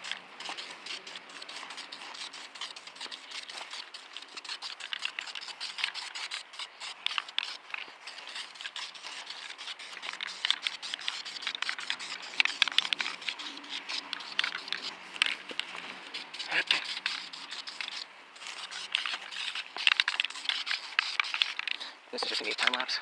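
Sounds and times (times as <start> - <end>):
hand scratching on a surface: 0.0 - 22.9.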